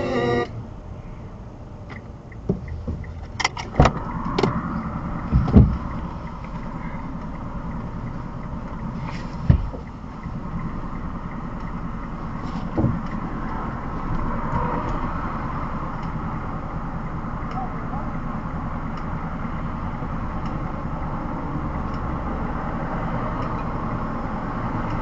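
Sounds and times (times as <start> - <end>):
car engine and road noise: 0.0 - 25.0
sharp thumps: 1.9 - 6.7, 9.0 - 10.7, 12.4 - 13.2.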